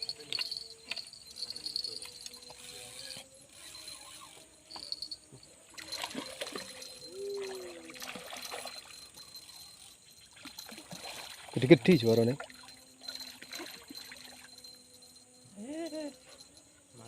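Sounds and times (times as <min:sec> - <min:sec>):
insect chirr: 0:00.0 - 0:17.0
river water trickling: 0:00.0 - 0:17.0.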